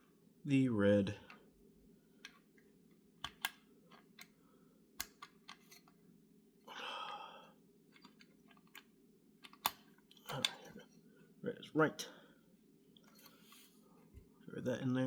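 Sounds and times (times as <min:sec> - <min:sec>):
metal parts clicking and tapping: 0:03.2 - 0:04.3, 0:07.9 - 0:10.8.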